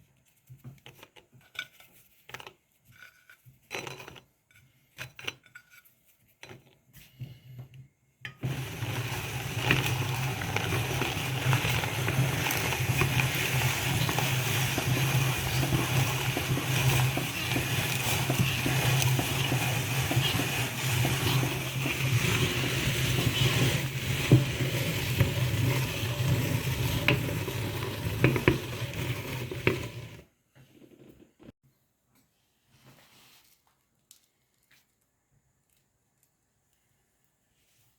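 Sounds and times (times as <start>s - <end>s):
meat grinder motor humming: 8.4s - 30.2s
cookies crunching in grinder: 8.4s - 30.3s.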